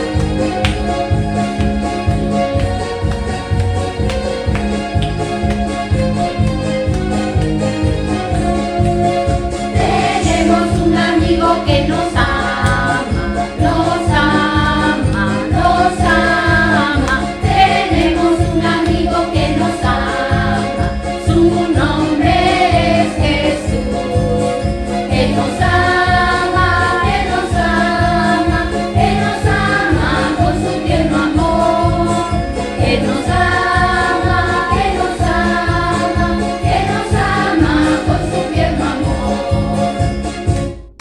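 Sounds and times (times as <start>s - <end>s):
song with steady beat: 0.0s - 41.0s
voices singing a melody: 9.7s - 40.1s.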